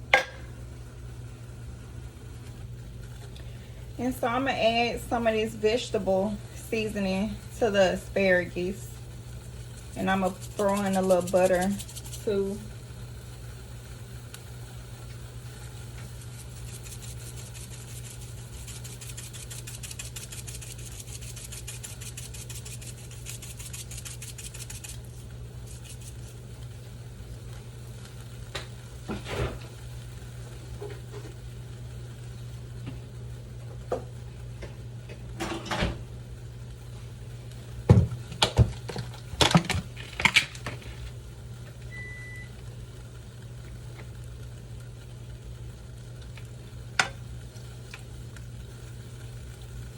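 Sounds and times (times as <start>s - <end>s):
fast fine crackle: 15.4s - 26.8s
short beep: 41.9s - 42.5s.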